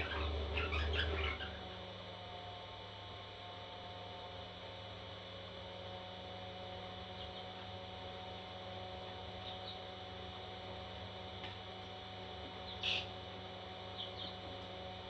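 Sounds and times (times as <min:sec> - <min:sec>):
parrot chicks chirping: 0:00.0 - 0:01.7, 0:12.7 - 0:13.2
steady background hum: 0:00.0 - 0:15.0.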